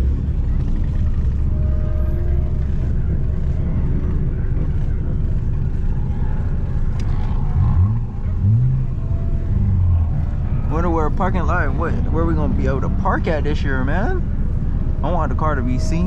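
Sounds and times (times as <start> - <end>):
car engine droning: 0.0 - 16.0
engine revving: 3.5 - 13.2.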